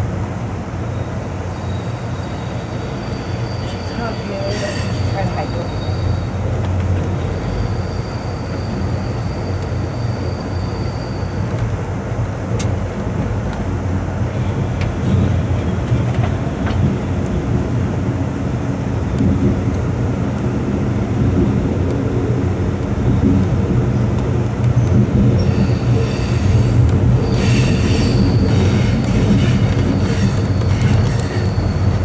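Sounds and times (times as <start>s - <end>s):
train wheels rumbling on track: 0.0s - 32.0s
high wheel squeal: 0.4s - 11.5s, 24.8s - 32.0s.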